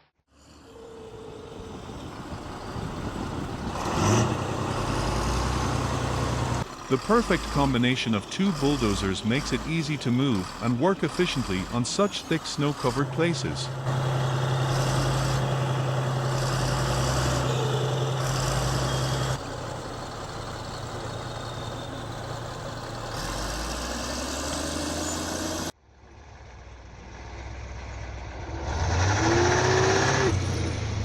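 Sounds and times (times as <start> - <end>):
heavy vehicle engines running: 0.3 - 31.0
engine revving up: 3.4 - 19.4, 20.4 - 25.7, 28.3 - 31.0.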